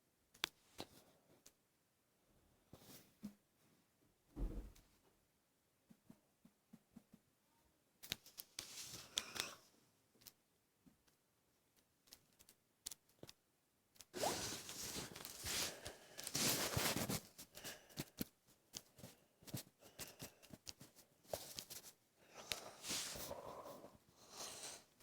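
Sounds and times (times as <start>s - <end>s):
rustling and scraping: 14.2s - 18.3s, 20.8s - 24.0s.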